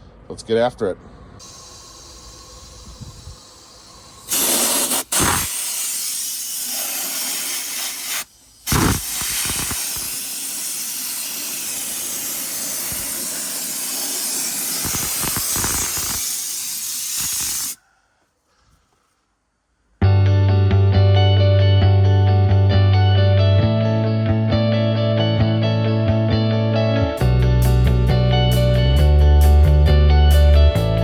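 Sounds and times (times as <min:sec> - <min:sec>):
sandblaster hissing: 0:01.4 - 0:17.8.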